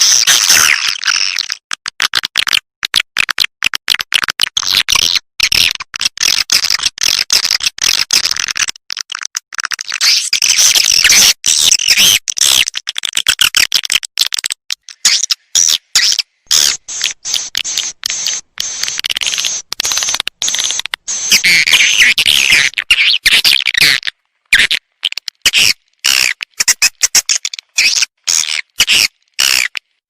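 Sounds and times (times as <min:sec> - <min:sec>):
swiftlet call twitters and clicks: 0:14.8 - 0:24.1.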